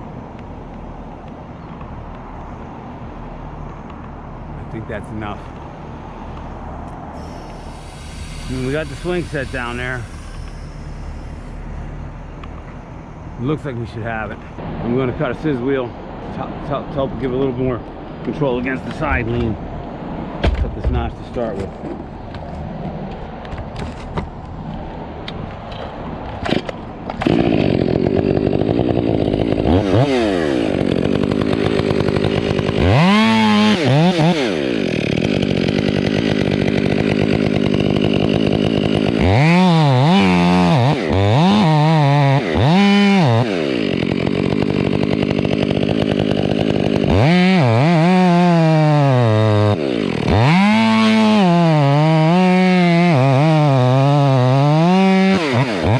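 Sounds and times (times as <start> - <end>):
chainsaw cutting wood: 7.2 - 12.8, 26.4 - 55.9.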